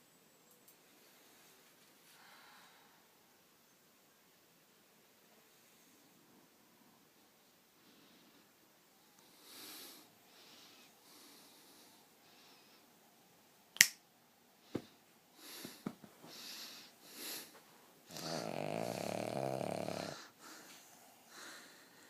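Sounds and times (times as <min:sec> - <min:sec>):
sharp clicks: 0:13.8 - 0:14.0
dog snoring: 0:18.1 - 0:21.2.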